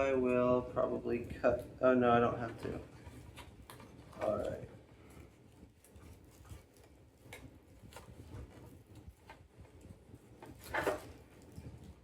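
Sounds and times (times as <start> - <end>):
packaging rustle: 2.5 - 12.0.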